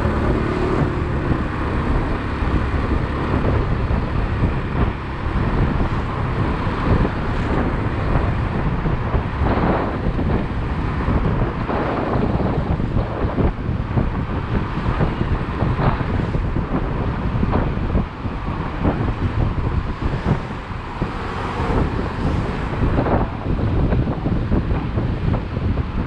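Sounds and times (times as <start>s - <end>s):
motorcycle engine: 0.0s - 10.6s
road noise: 0.0s - 26.0s
wind buffeting microphone: 0.0s - 26.0s.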